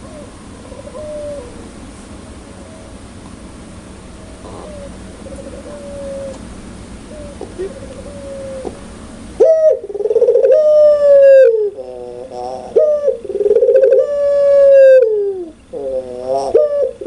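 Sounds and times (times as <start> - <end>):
dove cooing loudly: 0.0 - 1.9, 4.2 - 17.0.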